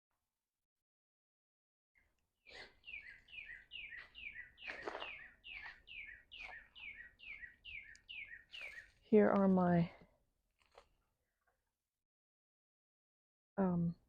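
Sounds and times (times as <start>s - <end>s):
songbird whistling: 2.5s - 9.0s.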